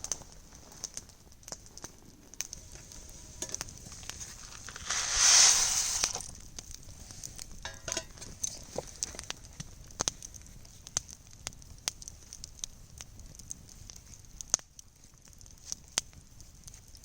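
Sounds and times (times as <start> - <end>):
campfire crackling and popping: 0.0 - 17.0
loud rushing hiss: 2.6 - 6.3.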